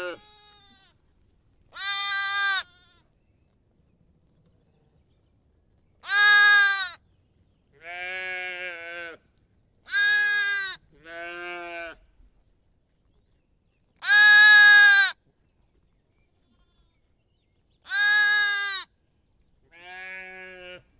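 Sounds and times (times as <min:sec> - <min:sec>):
sheep or goats bleating: 0:00.0 - 0:01.0, 0:01.8 - 0:03.1, 0:07.8 - 0:09.2, 0:09.9 - 0:12.0, 0:14.0 - 0:15.1, 0:17.9 - 0:18.9, 0:19.7 - 0:20.9.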